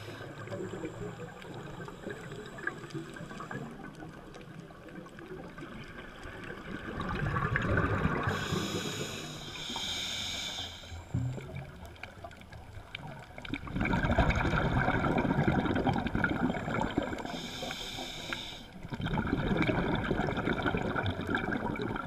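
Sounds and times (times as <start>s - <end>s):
exhalation bubbling underwater: 6.6s - 8.5s, 13.4s - 17.3s, 18.8s - 22.0s
regulator inhalation hiss: 8.3s - 11.1s, 17.2s - 18.8s.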